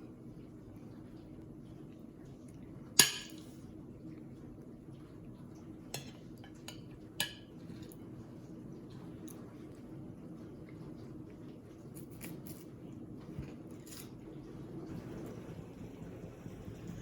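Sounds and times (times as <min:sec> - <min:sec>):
faint room hum: 0:00.0 - 0:17.0
dishes and utensils clinking: 0:03.0 - 0:03.6, 0:06.0 - 0:08.0.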